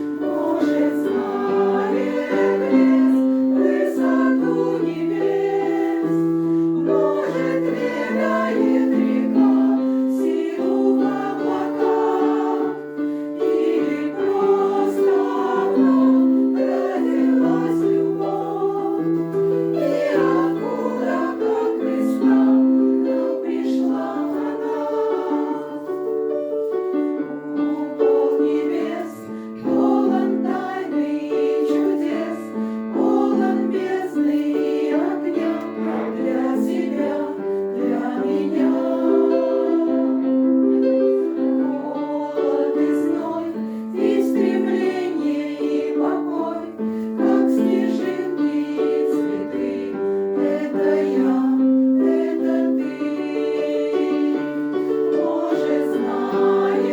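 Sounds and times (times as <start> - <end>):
choir singing: 0.0 - 56.9.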